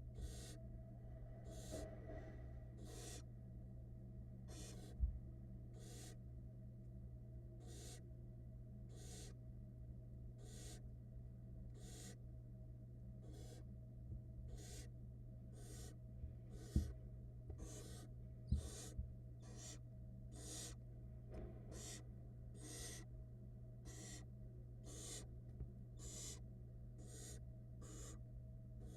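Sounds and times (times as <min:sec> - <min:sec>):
steady low hum: 0:00.0 - 0:28.9
owl nestlings hissing begging calls: 0:00.2 - 0:00.6, 0:01.4 - 0:01.8, 0:02.8 - 0:03.3, 0:04.5 - 0:05.0, 0:05.7 - 0:06.2, 0:07.6 - 0:08.0, 0:08.9 - 0:09.4, 0:10.4 - 0:10.8, 0:11.8 - 0:12.2, 0:13.2 - 0:13.6, 0:14.5 - 0:14.9, 0:15.6 - 0:16.9, 0:17.6 - 0:20.8, 0:21.7 - 0:22.0, 0:22.6 - 0:23.1, 0:23.8 - 0:25.3, 0:26.0 - 0:26.4, 0:27.0 - 0:28.2.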